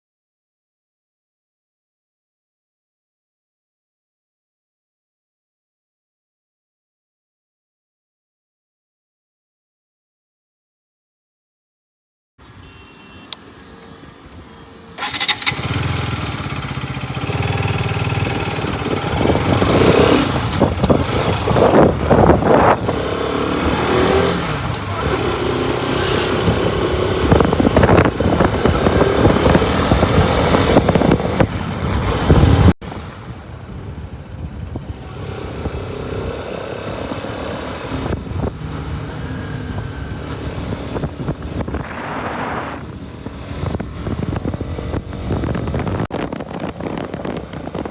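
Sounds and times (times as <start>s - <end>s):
motorcycle engine revving: 13.2s - 33.4s, 34.6s - 47.9s
wind noise: 14.3s - 47.9s.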